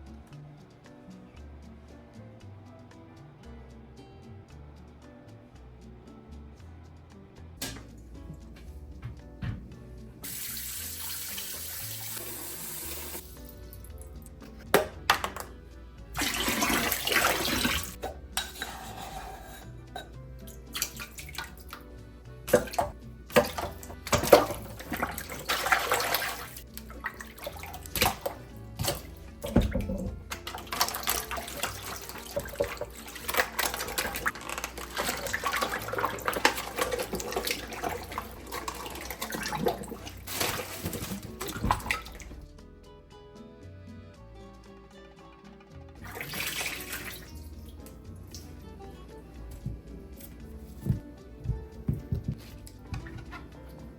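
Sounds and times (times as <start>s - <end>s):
items knocking in sink: 7.6s - 9.9s, 14.4s - 15.6s, 16.2s - 19.0s, 22.5s - 42.4s, 49.2s - 53.9s
tap water running into sink: 7.6s - 15.5s, 16.2s - 21.9s, 22.5s - 42.4s, 46.0s - 53.9s.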